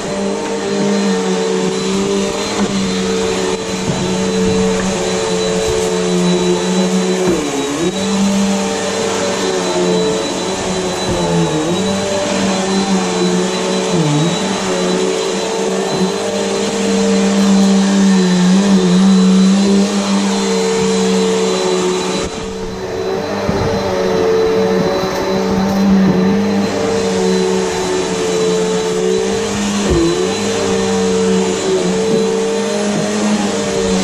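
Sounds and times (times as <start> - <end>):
vacuum cleaner running on carpet: 0.0 - 34.0.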